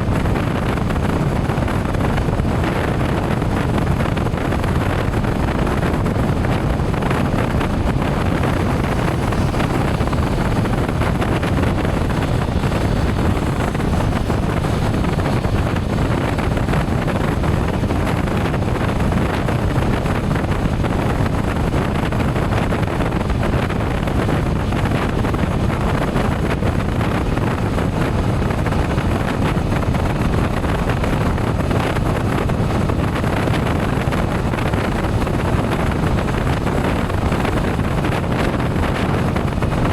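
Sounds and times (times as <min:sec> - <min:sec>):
motorcycle running: 0:00.0 - 0:39.9
road noise: 0:00.0 - 0:39.9
wind rush on microphone: 0:00.0 - 0:39.9.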